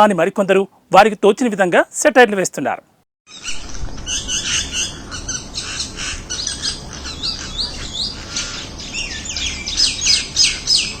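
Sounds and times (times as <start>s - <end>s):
sharp downward-sweeping bird calls: 3.3s - 11.0s.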